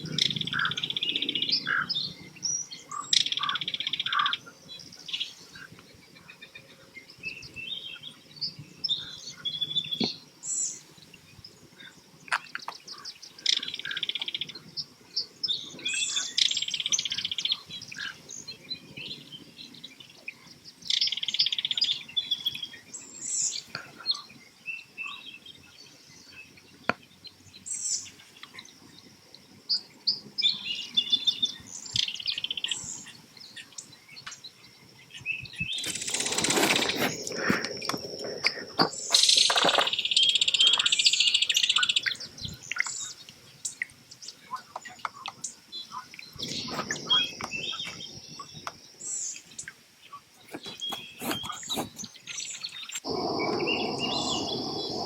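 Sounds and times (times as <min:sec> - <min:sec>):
high bird chirps: 0:50.6 - 0:55.0.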